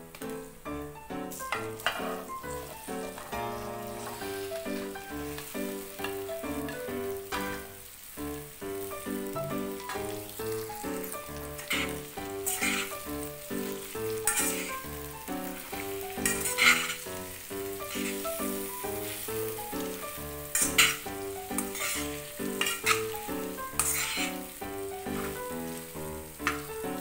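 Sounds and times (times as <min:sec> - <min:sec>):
food sizzling in oil: 0:00.0 - 0:27.0
light background music: 0:00.0 - 0:27.0
spoon scraping pan: 0:01.3 - 0:07.7, 0:11.6 - 0:13.1, 0:14.1 - 0:17.2, 0:17.8 - 0:19.3, 0:20.5 - 0:24.5, 0:25.1 - 0:25.5.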